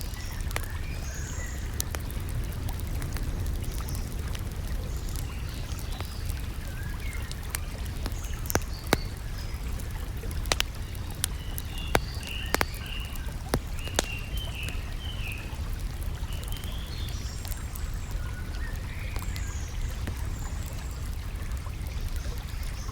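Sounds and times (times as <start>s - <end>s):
small birds chirping: 0.0s - 4.2s, 4.8s - 22.9s
campfire crackling and popping: 0.0s - 22.9s.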